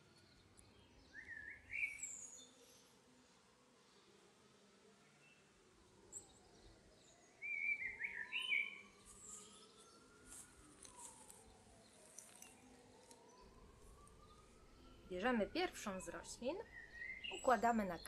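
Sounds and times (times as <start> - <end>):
bird chirping: 0.0 - 2.6, 6.1 - 10.1, 10.9 - 18.0.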